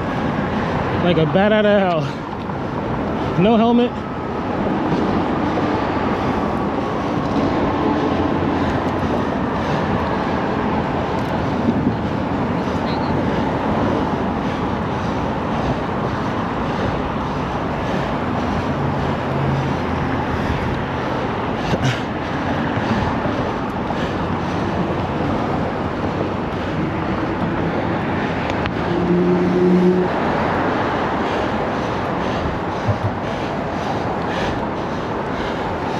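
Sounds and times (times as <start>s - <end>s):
motor traffic: 0.0s - 35.9s
wind and road noise: 0.0s - 35.9s.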